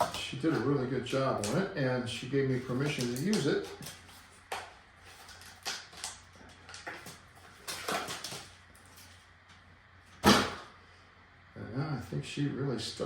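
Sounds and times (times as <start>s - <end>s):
steady low hum: 0.0s - 13.0s
knocks and rustles of handling: 2.5s - 9.6s.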